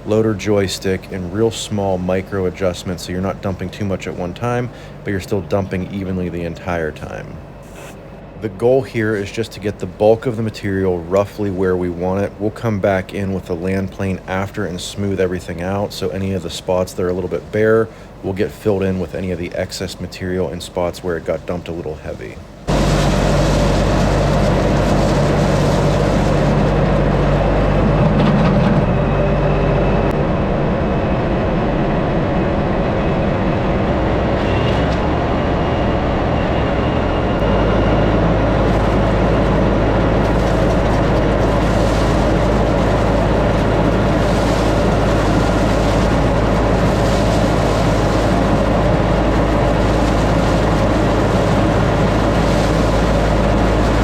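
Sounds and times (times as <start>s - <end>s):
tractor diesel engine running: 22.5s - 54.0s.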